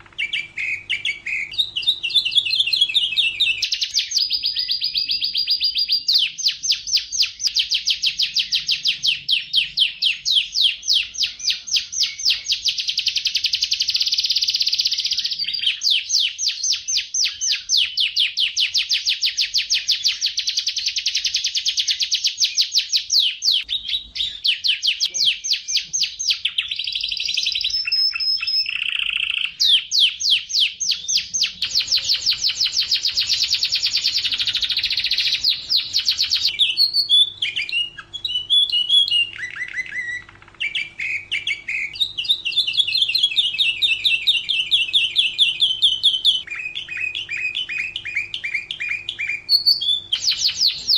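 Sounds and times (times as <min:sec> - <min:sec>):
canary singing: 0:00.0 - 0:50.9.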